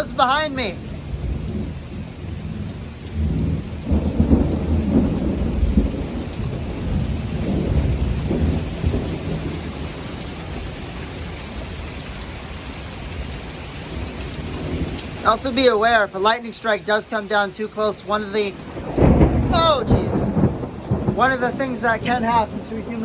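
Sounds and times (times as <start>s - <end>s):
thunder rolling: 0.0s - 10.7s, 18.5s - 23.0s
heavy rain: 0.0s - 23.0s.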